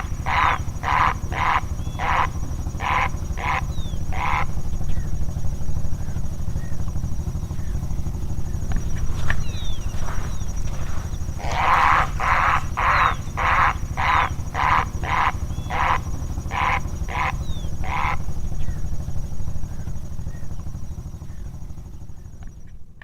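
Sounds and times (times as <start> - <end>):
bird harsh raspy calls: 0.0 - 5.2, 8.4 - 18.9
steady low rumble: 0.0 - 23.0.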